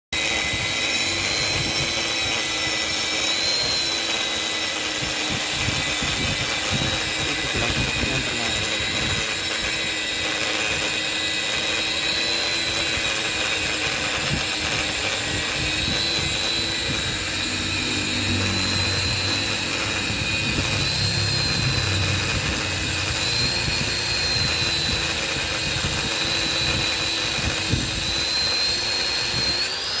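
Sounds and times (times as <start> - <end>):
motor running with high whine: 0.1 - 30.0.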